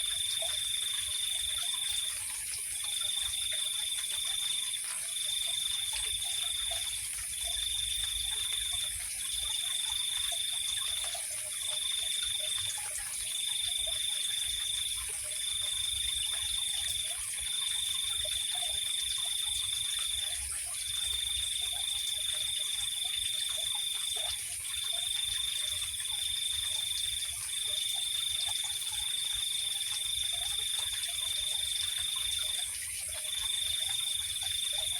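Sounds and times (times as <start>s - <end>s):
cricket trilling: 0.0s - 34.9s.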